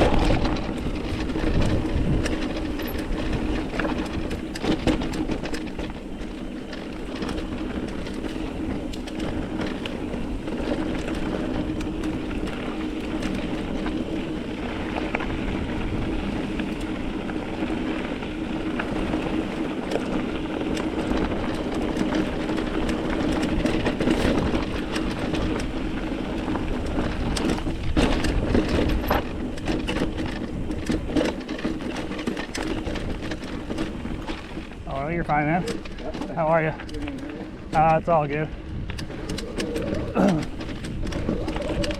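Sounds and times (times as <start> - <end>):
bike rattling clicks and knocks: 0.0 - 41.9
bike tyres on dirt and rock: 0.0 - 41.9.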